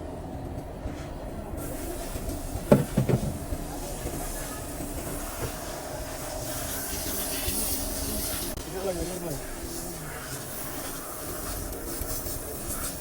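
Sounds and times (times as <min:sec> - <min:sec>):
knocks: 0:02.7 - 0:03.4.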